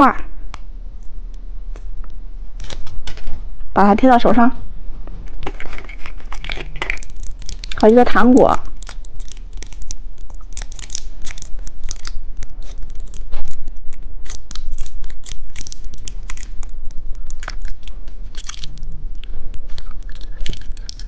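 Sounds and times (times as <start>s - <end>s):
plastic wrappers crinkling: 5.2s - 21.0s.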